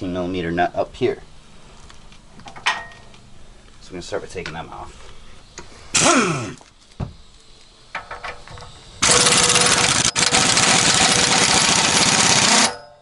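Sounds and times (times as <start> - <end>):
impact wrench hammering: 9.0 - 13.0.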